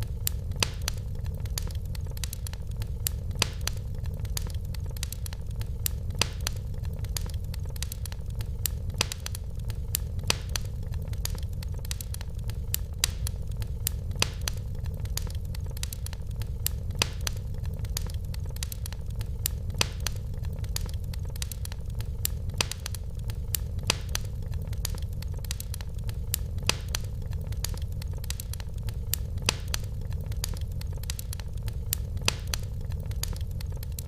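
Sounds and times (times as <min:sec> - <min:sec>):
fire crackling and popping: 0:00.0 - 0:34.0
low fire rumble: 0:00.0 - 0:34.0.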